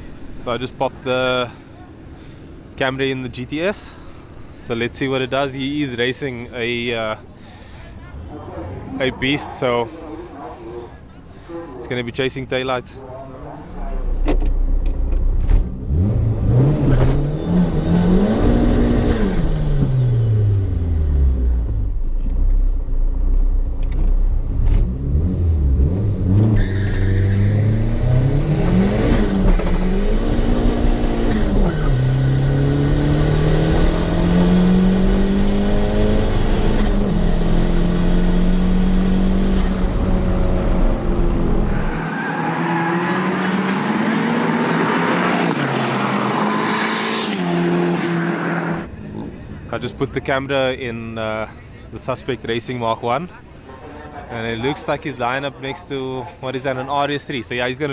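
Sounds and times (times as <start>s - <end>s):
car engine revving: 13.4s - 50.4s
turbo whine: 26.5s - 42.1s.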